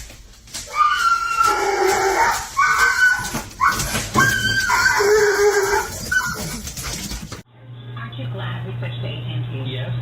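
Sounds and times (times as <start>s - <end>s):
dog howling: 0.7s - 6.7s.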